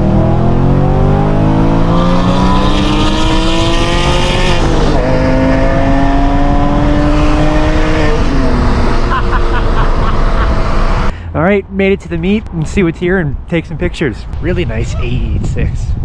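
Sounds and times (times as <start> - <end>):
car engine accelerating: 0.0 - 11.1.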